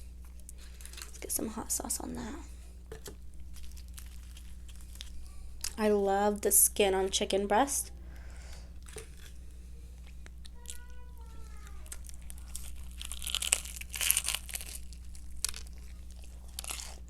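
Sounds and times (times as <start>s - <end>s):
fried chicken crackling: 10.6s - 17.0s.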